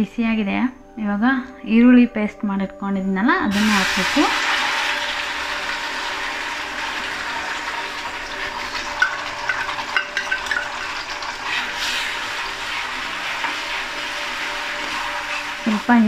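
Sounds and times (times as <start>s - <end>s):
onion paste sizzling in oil: 3.5s - 16.0s
sharp pops of frying: 7.8s - 11.5s
metal ladle stirring: 8.6s - 15.5s.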